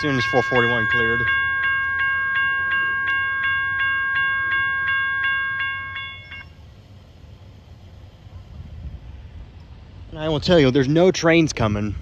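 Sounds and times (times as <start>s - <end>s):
railroad crossing bell ringing: 0.0s - 7.0s.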